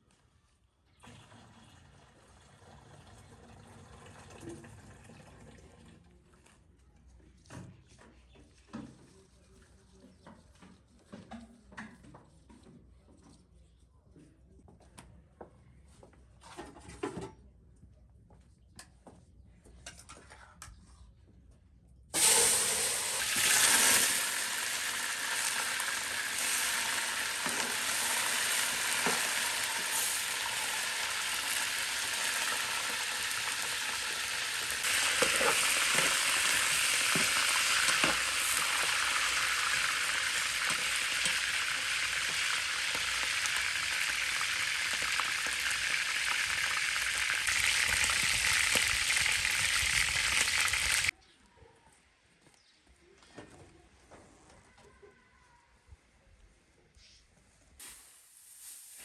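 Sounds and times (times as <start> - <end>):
food sizzling in hot oil: 22.2 - 51.1, 57.8 - 59.0.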